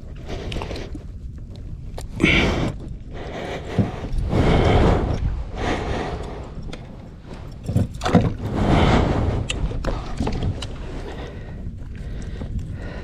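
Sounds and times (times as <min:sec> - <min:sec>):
wind: 0:00.0 - 0:13.0
water sloshing around kayak: 0:07.0 - 0:08.8.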